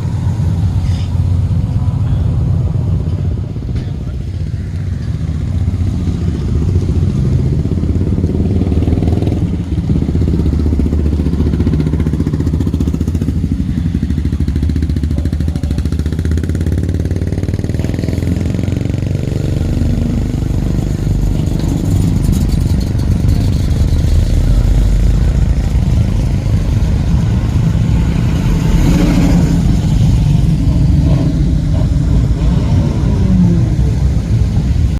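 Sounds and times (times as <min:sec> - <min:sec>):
car engines rumbling: 0:00.0 - 0:34.9.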